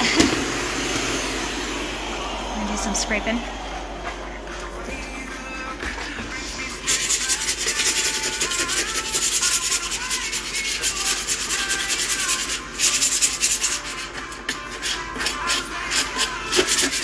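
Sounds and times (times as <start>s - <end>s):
hand scraper scraping floor: 3.6s - 17.0s.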